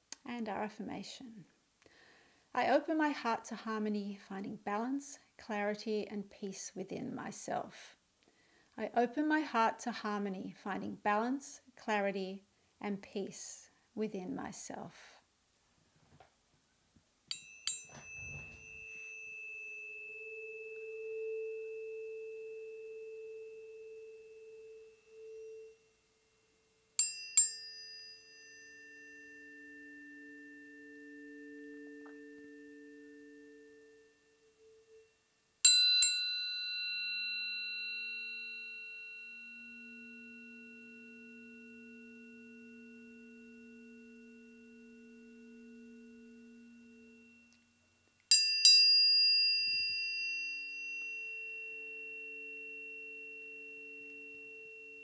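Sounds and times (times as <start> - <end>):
tuning fork metallic clink: 17.3 - 55.0
tuning fork ringing tones: 17.3 - 55.0.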